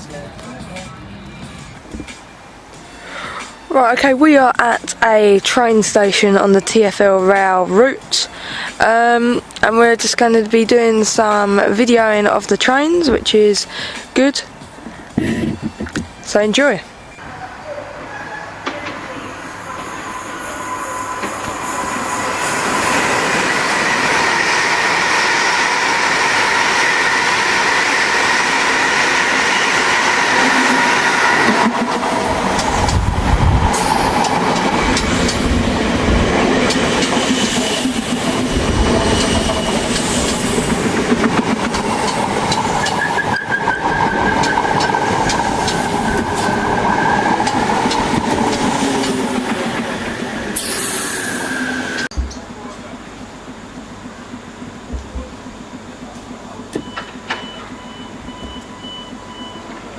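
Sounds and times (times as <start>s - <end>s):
train low rumble: 16.9s - 59.9s
train high-pitched whine: 17.0s - 59.9s
wheels clicking over rail joints: 30.7s - 50.7s.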